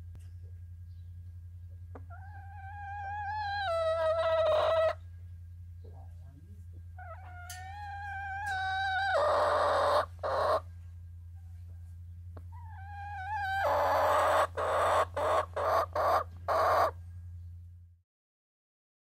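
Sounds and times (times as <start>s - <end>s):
steady low hum: 0.0s - 18.0s
hens squawking: 1.9s - 5.0s, 7.0s - 10.7s, 12.4s - 17.0s.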